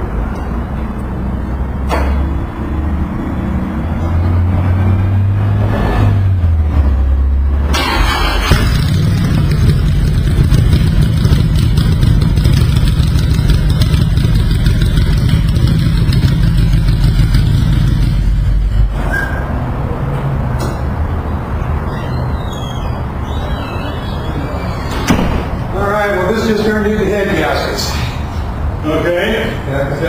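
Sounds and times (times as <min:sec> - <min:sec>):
motorcycle engine running: 0:08.4 - 0:18.8.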